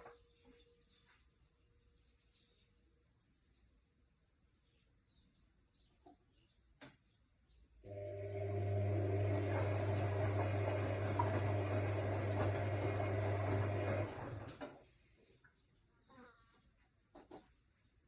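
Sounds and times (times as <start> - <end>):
click: 6.8 - 7.0
washing machine humming and rushing: 7.9 - 14.8.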